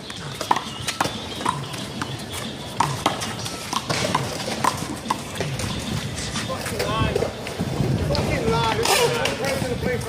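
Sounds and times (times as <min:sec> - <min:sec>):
handball smacking wall and pavement: 0:00.0 - 0:05.8.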